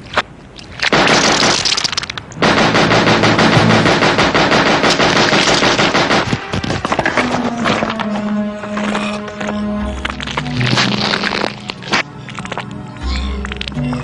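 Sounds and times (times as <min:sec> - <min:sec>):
automatic gunfire: 0:00.9 - 0:01.8, 0:02.4 - 0:06.6.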